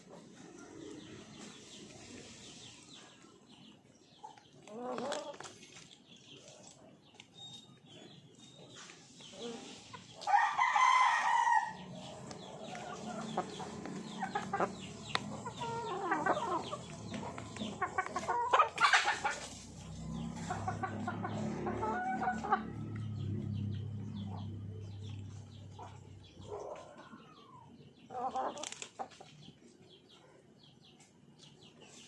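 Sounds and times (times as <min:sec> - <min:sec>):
chickens clucking: 0:00.0 - 0:32.0
rooster crowing: 0:10.2 - 0:12.1.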